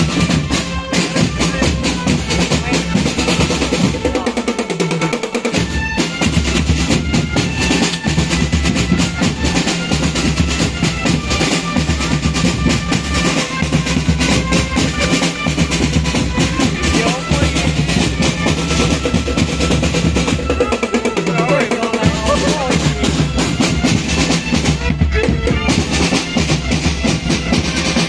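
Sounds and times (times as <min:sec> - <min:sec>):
snare drum strokes: 0:00.0 - 0:28.0
held melody notes: 0:05.4 - 0:28.0
bass drums: 0:05.6 - 0:28.0.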